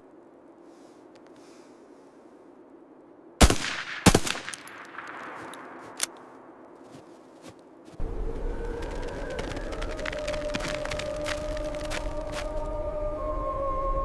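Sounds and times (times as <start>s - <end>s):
smaller sharp crack: 3.4s - 6.2s.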